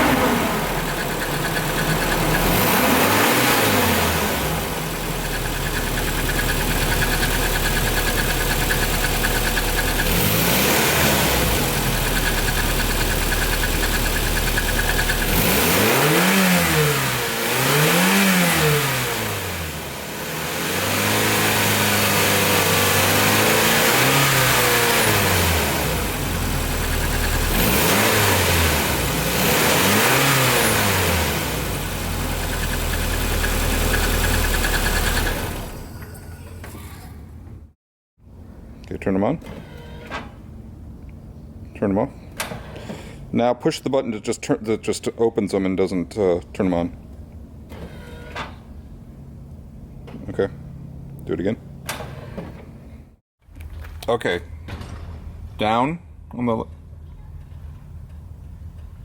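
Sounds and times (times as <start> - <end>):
car engine idling and revving: 0.0 - 35.8.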